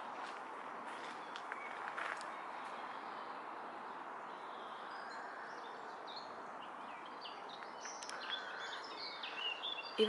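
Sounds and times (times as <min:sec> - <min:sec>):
outdoor background hiss: 0:00.0 - 0:10.0
small birds chirping: 0:04.2 - 0:10.0.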